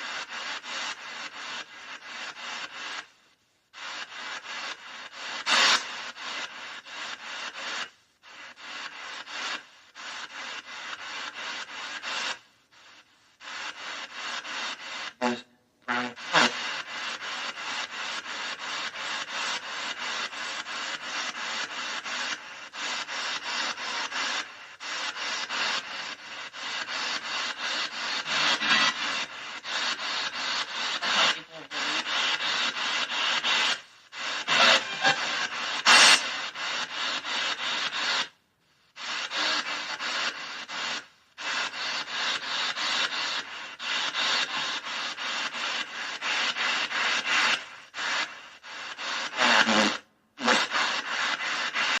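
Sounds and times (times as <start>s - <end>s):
rapid chopped rasping noise: 22.9s - 38.3s.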